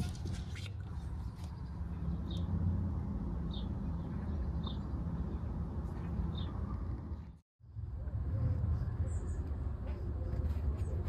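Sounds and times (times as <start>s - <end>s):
bird chirping: 0.5s - 2.6s, 3.4s - 7.4s.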